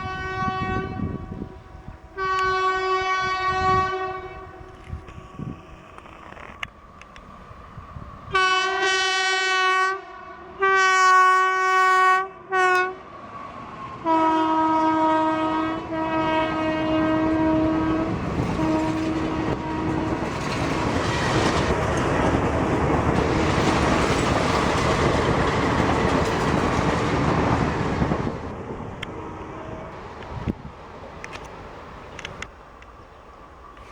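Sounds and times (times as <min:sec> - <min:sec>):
train horn blasts: 0:00.0 - 0:05.7, 0:08.3 - 0:13.1, 0:14.0 - 0:20.6
train coaches rushing past: 0:17.3 - 0:33.9.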